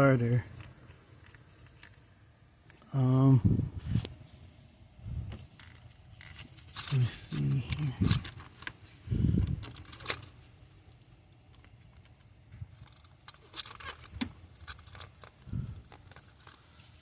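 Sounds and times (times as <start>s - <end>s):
tools clicking and rattling: 5.5s - 10.4s, 11.3s - 17.0s.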